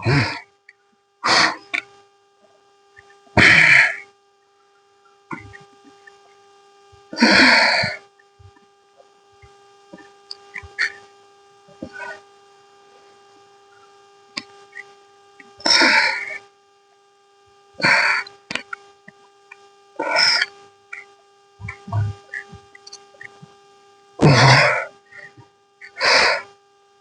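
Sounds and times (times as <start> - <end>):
faint electrical hum: 0.0 - 27.0
man exhaling forcefully: 3.4 - 4.0, 24.2 - 24.9.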